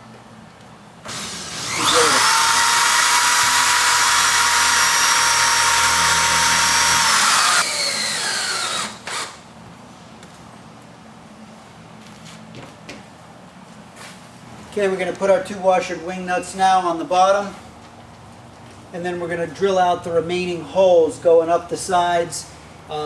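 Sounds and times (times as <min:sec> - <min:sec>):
electric drill whining: 0:01.1 - 0:09.4.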